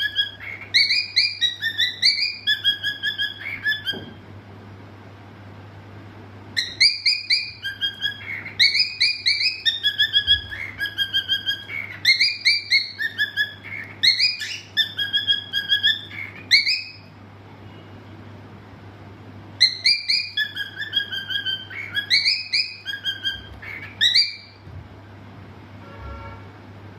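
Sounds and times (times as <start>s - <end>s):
cockatiel whistling: 0.0s - 4.2s, 6.6s - 17.1s, 19.6s - 24.6s.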